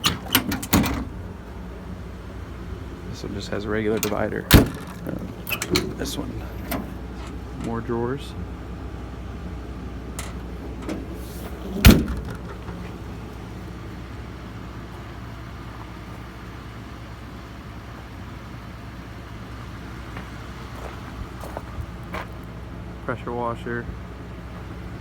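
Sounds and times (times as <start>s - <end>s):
latches clicking: 0.0s - 1.2s, 4.0s - 7.6s, 10.2s - 12.8s
metal compartment door slamming: 0.0s - 1.7s, 2.6s - 7.8s, 10.1s - 13.4s.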